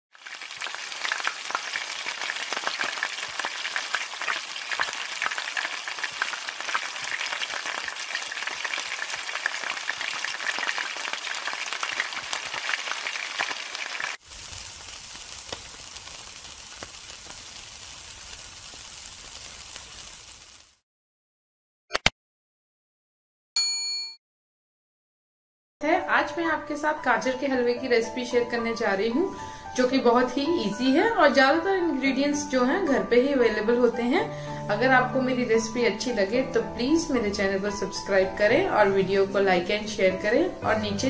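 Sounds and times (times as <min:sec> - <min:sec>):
food sizzling in hot oil: 0:00.1 - 0:20.8
meat grilling over charcoal: 0:00.1 - 0:20.8.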